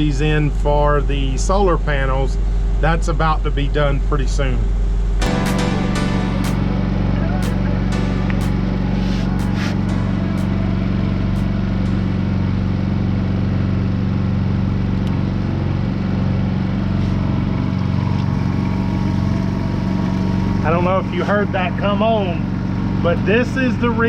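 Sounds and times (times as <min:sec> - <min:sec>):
generator running: 0:05.2 - 0:24.0
air conditioner running: 0:06.7 - 0:24.0.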